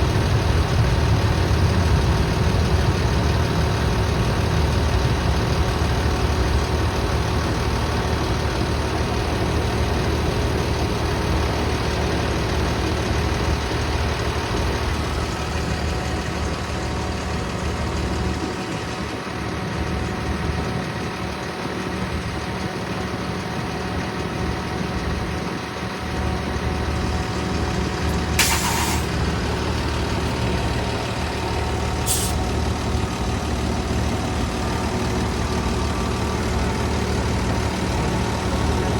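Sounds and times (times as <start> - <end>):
truck engine running: 0.0 - 38.9
hiss of released air: 28.4 - 29.2, 32.0 - 32.4.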